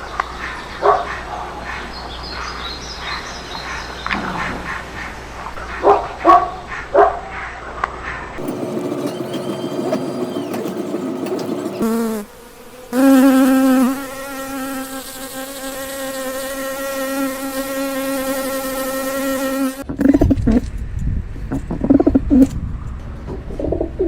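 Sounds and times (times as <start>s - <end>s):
flying insect buzzing: 10.8s - 19.9s.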